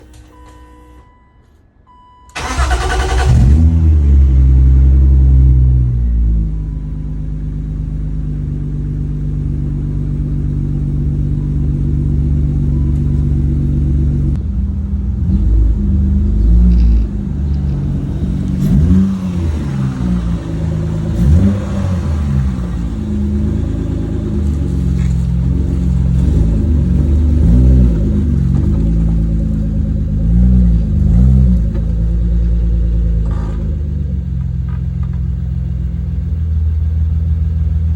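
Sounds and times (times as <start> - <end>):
car engine starting and idling: 0.0 - 37.9
engine revving: 2.4 - 6.3, 13.9 - 32.1.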